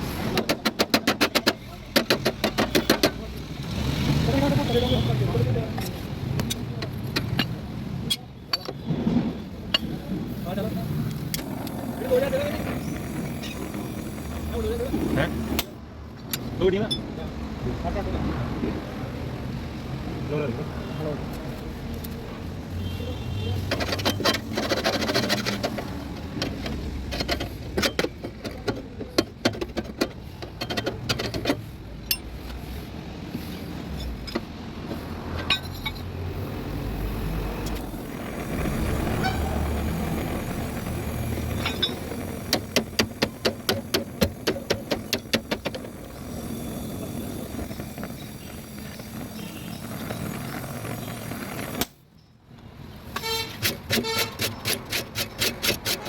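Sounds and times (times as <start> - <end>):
sharp knocks and taps: 0.3 - 3.2.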